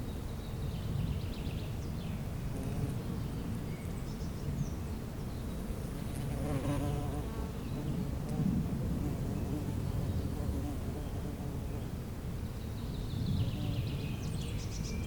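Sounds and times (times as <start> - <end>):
bee buzzing: 5.9 - 11.6.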